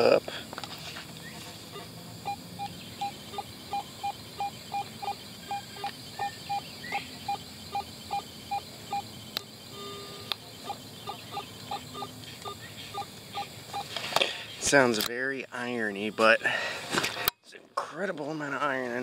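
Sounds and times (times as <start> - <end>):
metal detector beeping: 1.4 - 14.1, 14.9 - 16.7.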